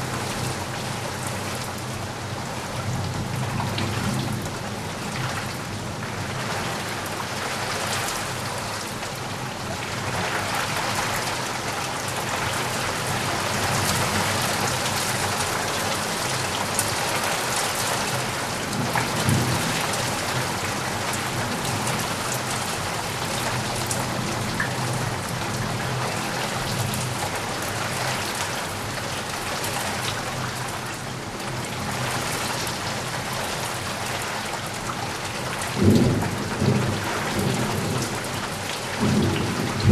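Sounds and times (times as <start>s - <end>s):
heavy rain pattering: 0.0s - 39.9s
low rumble of thunder: 35.7s - 39.9s.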